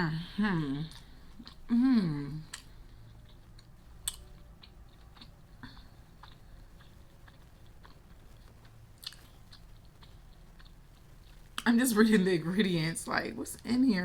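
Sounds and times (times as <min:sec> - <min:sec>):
chewing food: 0:00.6 - 0:11.7.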